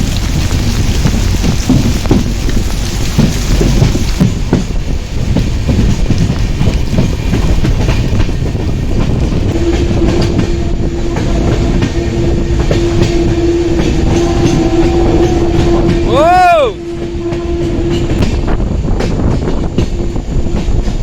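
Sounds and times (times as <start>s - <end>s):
wheels clattering over rail joints: 0.0s - 10.5s
train running rumble: 0.0s - 21.0s.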